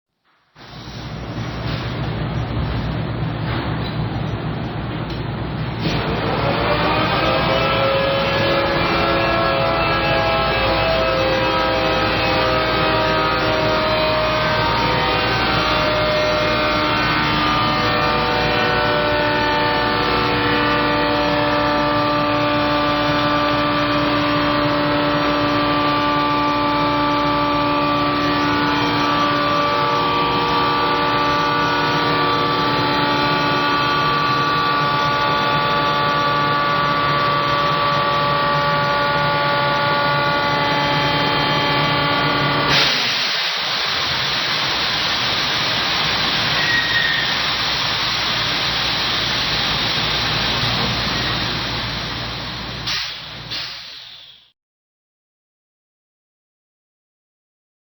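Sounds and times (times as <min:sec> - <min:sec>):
air compressor whine: 0:00.4 - 0:54.5
air hiss: 0:00.6 - 0:01.8, 0:42.7 - 0:54.5.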